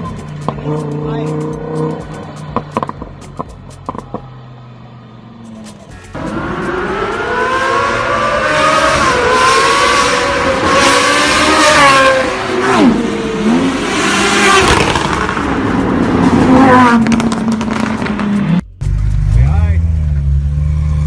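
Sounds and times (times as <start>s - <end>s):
car engine revving loudly: 6.2s - 21.0s.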